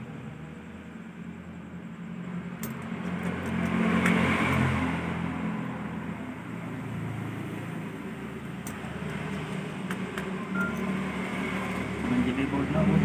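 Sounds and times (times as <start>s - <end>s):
vehicle engine passing by: 3.1s - 13.0s.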